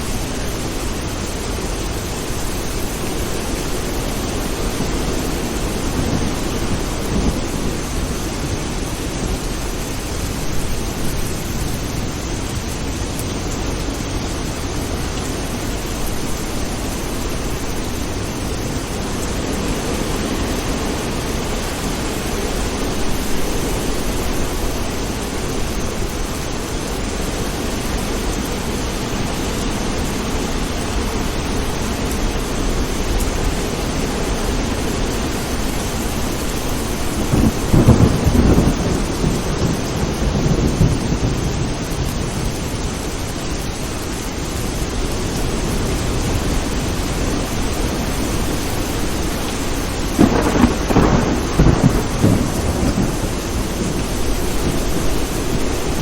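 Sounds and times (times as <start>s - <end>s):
low thunder rumble: 0.0s - 11.9s, 34.4s - 43.1s, 47.9s - 56.0s
heavy rain: 0.0s - 56.0s
thunder clap: 4.2s - 8.4s, 36.5s - 42.0s, 50.0s - 56.0s.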